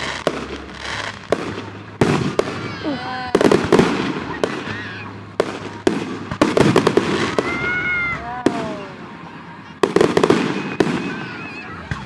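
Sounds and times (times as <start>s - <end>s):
fireworks bangs and crackles: 0.0s - 12.0s
falling pitched wail: 7.1s - 9.3s, 10.2s - 12.0s.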